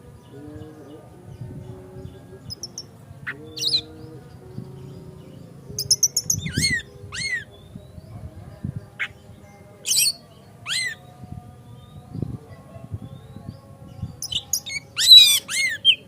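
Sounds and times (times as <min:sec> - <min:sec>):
bird singing whistles and calls: 0:02.5 - 0:04.0, 0:05.8 - 0:08.2, 0:09.8 - 0:12.3, 0:13.0 - 0:16.0.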